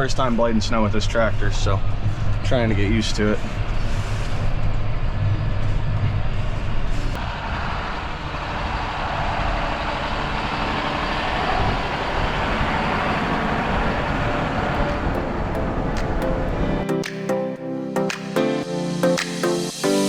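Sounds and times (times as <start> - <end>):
steady rushing noise: 6.4 - 17.2.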